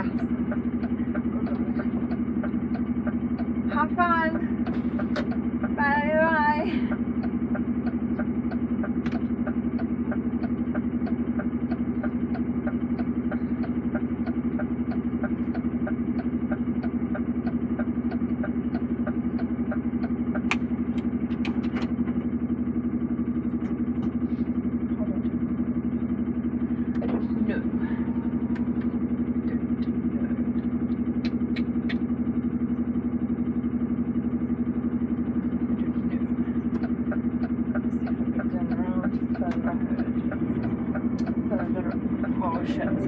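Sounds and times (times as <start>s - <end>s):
diesel engine running: 0.0s - 43.0s
sharp clicks: 20.4s - 22.0s, 30.9s - 32.1s.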